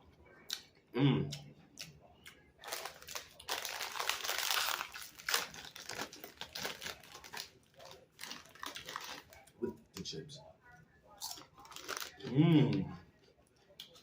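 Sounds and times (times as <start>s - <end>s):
plastic chip bag crackling: 2.6s - 9.5s, 11.3s - 12.3s.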